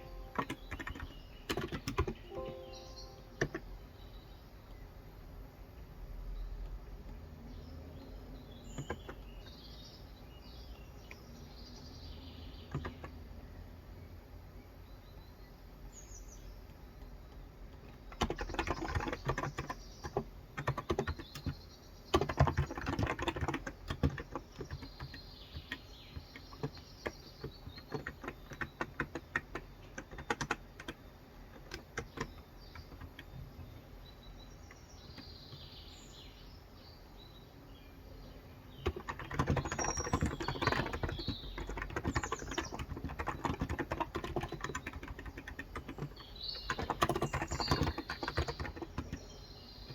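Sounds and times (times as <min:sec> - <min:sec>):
keyboard typing: 0:00.0 - 0:03.8, 0:08.7 - 0:09.3, 0:12.7 - 0:13.2, 0:17.3 - 0:33.8, 0:38.8 - 0:49.9
birds chirping faintly: 0:00.0 - 0:49.9.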